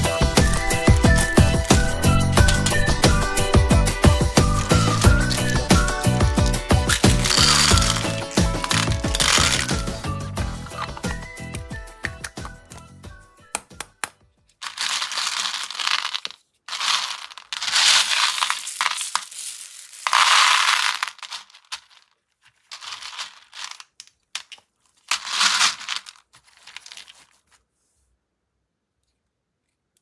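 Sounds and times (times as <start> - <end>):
music: 0.0 - 14.6
candy wrappers crinkling and tearing: 0.4 - 10.0, 14.6 - 27.4.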